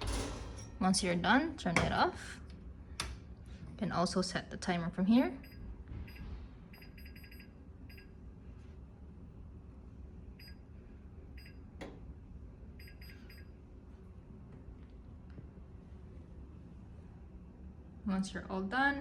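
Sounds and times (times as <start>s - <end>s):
low steady hum: 0.0s - 19.0s
oven timer beeping: 5.4s - 8.1s, 12.8s - 13.5s.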